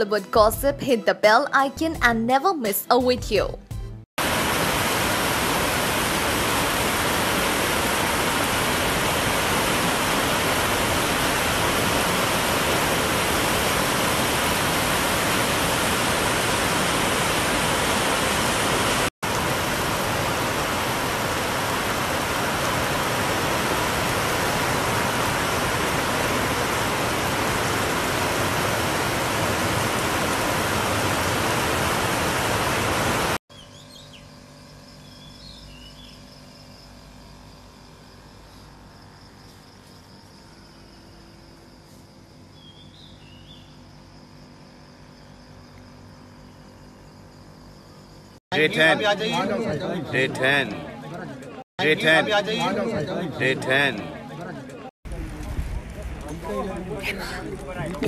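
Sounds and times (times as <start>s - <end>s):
heavy rain pouring: 4.2s - 33.4s, 55.1s - 58.0s
faint chirping: 37.6s - 48.4s.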